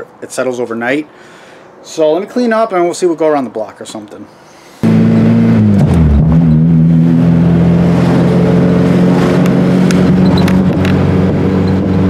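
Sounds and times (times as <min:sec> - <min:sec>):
car engine running: 0:04.8 - 0:12.0.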